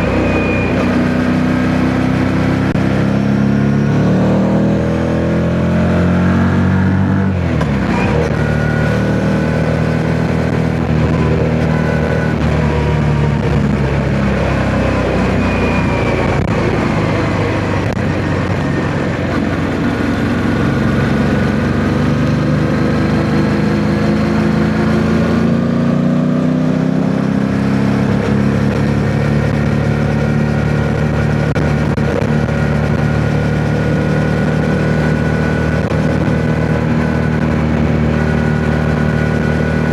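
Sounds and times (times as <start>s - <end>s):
motorcycle engine revving: 0.0s - 39.9s
wind noise on microphone: 9.6s - 22.0s.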